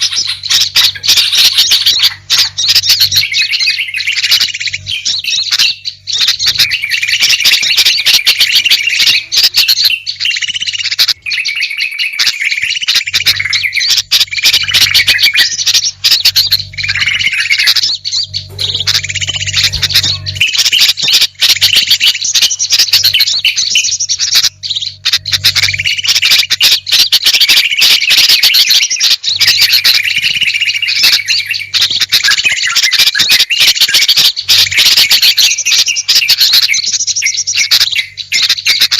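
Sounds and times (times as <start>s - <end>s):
songbirds chattering and chirping: 0.0s - 38.9s
low hum: 12.9s - 27.3s.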